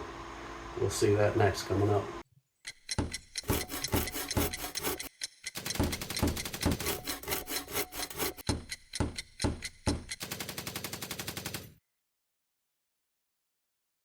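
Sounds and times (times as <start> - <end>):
hand tool rasping strokes: 2.7 - 10.2.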